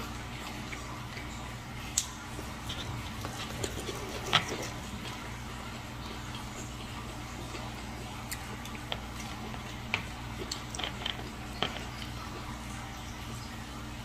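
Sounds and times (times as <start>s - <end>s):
person chewing: 0.0s - 12.5s
steady low hum: 0.0s - 14.0s
small clicks and crackles: 6.0s - 12.4s.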